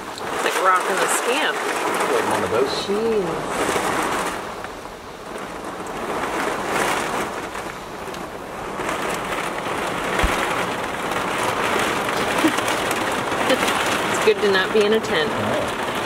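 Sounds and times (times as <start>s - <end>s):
gusts of wind: 0.0s - 16.0s
heavy rain on a trailer roof: 0.0s - 16.0s.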